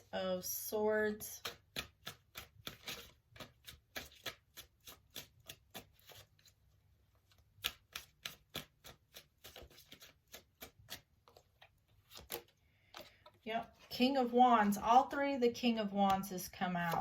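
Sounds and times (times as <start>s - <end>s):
cards being shuffled: 1.4s - 6.6s, 7.2s - 13.9s, 16.1s - 17.0s.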